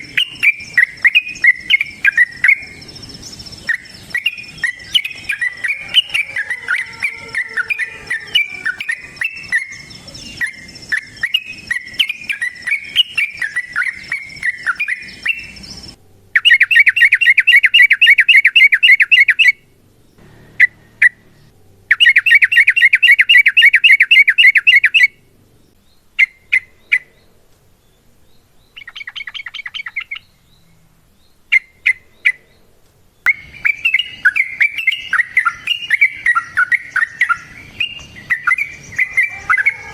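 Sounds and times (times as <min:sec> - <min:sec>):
short bird chirps: 0:00.0 - 0:19.5
birds chattering song: 0:00.0 - 0:39.9
rapid bird trills: 0:00.0 - 0:39.9.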